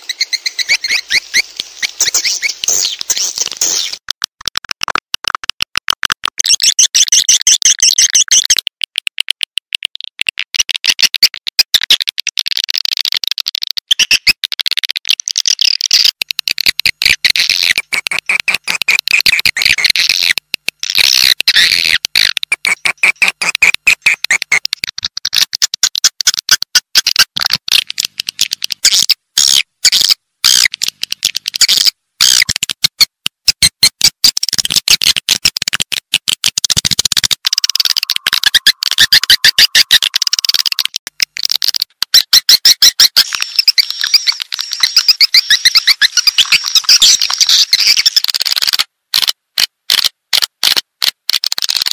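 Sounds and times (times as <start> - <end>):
swiftlets twittering: 37.4 - 40.9.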